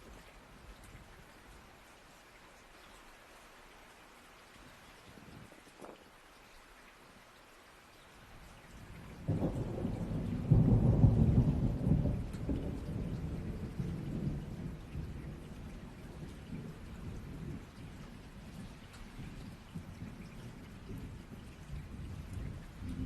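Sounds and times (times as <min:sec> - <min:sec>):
rain hiss: 0:00.0 - 0:23.0
thunder rumbling: 0:08.9 - 0:23.0.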